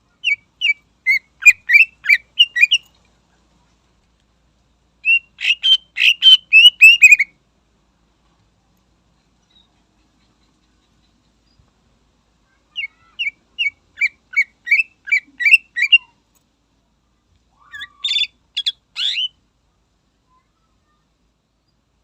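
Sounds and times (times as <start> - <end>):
bird whistling song: 0.2 - 2.8, 5.0 - 7.3, 12.8 - 16.1, 17.6 - 19.4.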